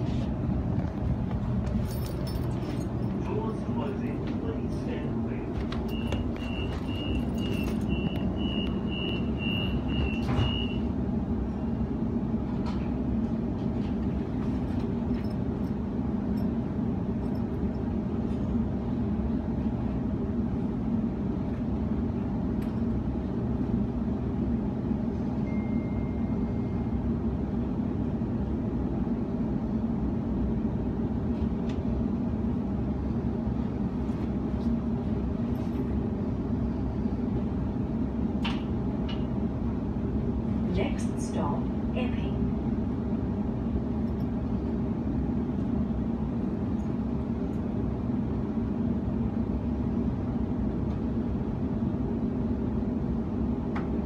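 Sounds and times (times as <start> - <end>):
train door warning beeps: 5.5 - 10.9, 25.4 - 27.1
train doors knocking shut: 9.7 - 10.8.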